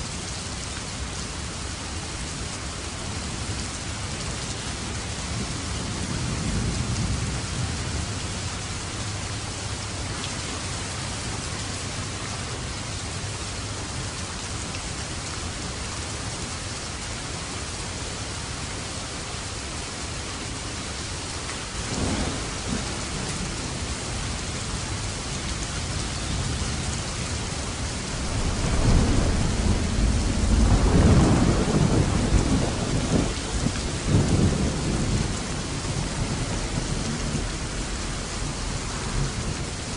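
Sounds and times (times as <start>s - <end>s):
heavy rain: 0.0s - 39.9s
thunder rumbling: 21.8s - 25.6s, 26.3s - 39.9s.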